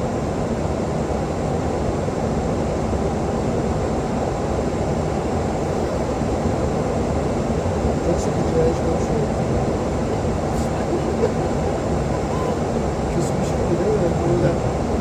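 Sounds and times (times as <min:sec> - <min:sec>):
airplane cabin engine and airflow noise: 0:00.0 - 0:15.0.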